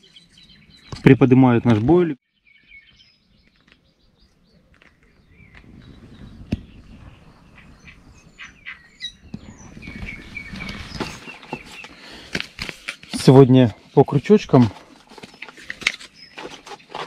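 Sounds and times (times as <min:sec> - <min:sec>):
small birds chirping: 0:00.0 - 0:17.0
rustling of handling: 0:10.0 - 0:17.0.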